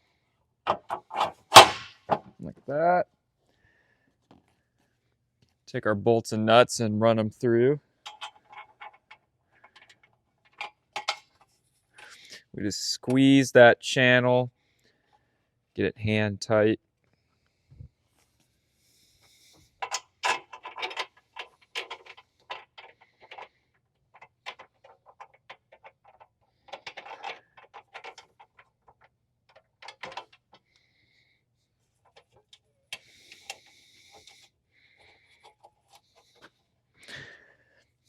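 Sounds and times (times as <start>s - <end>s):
metal parts scraping: 0.7s - 2.2s, 19.8s - 30.6s
metallic clicks and knocks: 8.0s - 11.5s, 19.8s - 30.7s.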